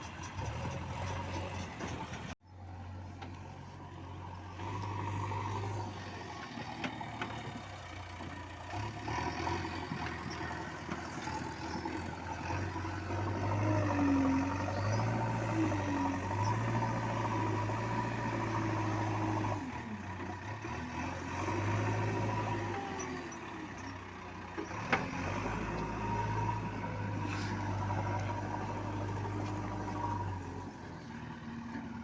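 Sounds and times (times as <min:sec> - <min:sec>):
heavy vehicle engine humming: 0:00.0 - 0:32.0.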